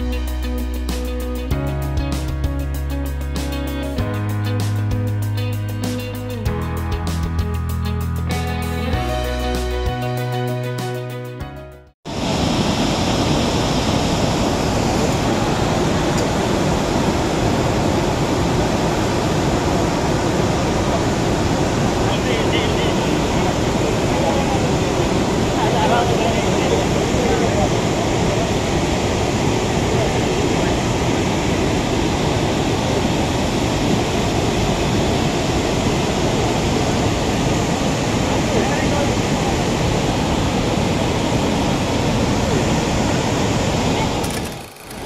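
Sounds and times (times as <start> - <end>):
waterfall rushing: 12.1 - 45.0.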